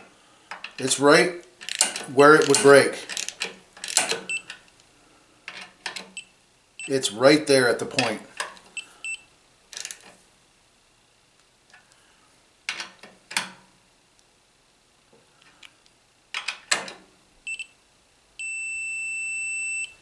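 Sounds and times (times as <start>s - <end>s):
socket wrench metal clicks: 1.6s - 4.4s
continuity meter beeping: 4.0s - 4.5s, 8.8s - 9.3s, 17.5s - 17.8s, 18.4s - 20.0s.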